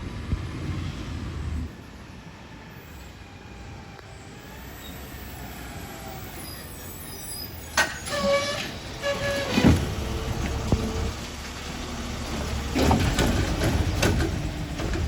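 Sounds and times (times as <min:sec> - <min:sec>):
garbage truck rumbling: 0:04.3 - 0:15.0
high metallic squeal: 0:06.0 - 0:09.8.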